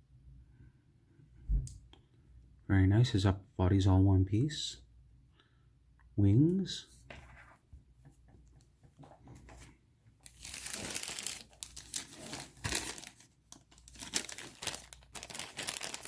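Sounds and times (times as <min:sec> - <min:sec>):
plastic bag crinkling: 0:10.2 - 0:16.0.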